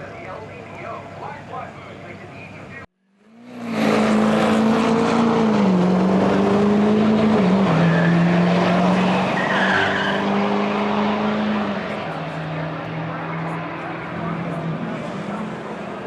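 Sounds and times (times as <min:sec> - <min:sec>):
car engine revving high: 0:03.2 - 0:16.0.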